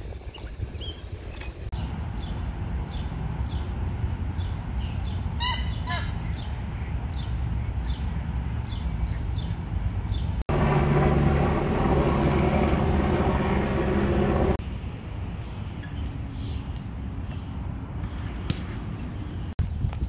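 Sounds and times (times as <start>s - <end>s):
harsh bird calls: 4.4s - 9.6s
steady rushing noise: 6.4s - 15.8s.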